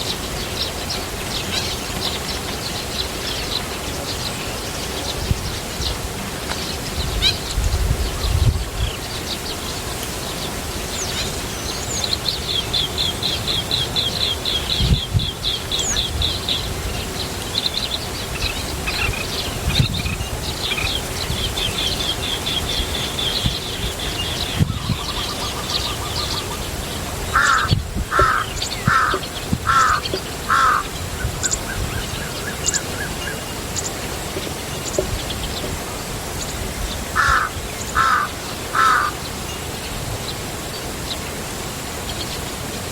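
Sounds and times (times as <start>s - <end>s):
birds calling: 0.0s - 42.6s.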